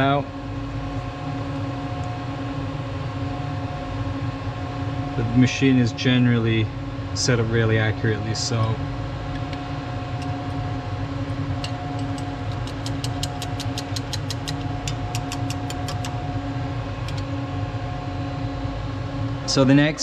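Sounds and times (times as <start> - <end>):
shop machinery humming: 0.0 - 20.0
quick light clicks: 11.6 - 16.2.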